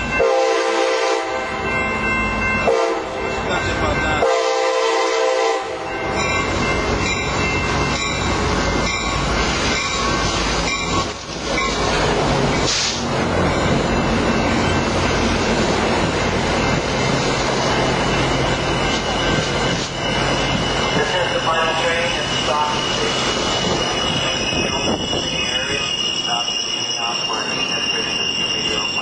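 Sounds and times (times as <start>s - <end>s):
train rail noise: 0.0s - 29.0s
brief hiss: 12.6s - 13.0s
wheels squealing: 17.0s - 29.0s.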